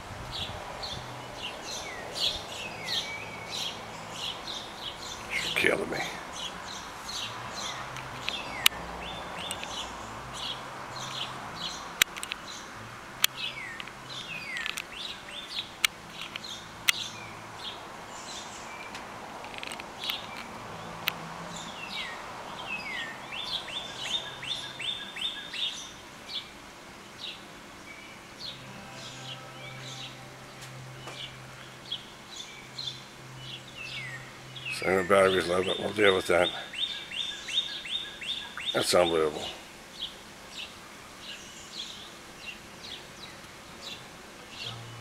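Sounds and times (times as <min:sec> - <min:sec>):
songbirds chirping: 0:00.0 - 0:45.0
sharp clicks: 0:09.4 - 0:09.8, 0:12.0 - 0:12.5, 0:13.2 - 0:15.0.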